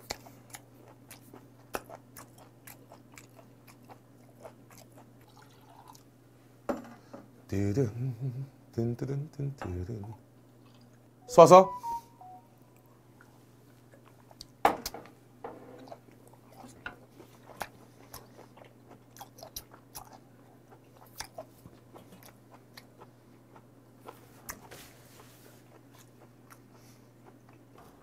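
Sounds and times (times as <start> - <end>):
wet chewing of raw meat: 0.0 - 6.1, 15.8 - 27.8.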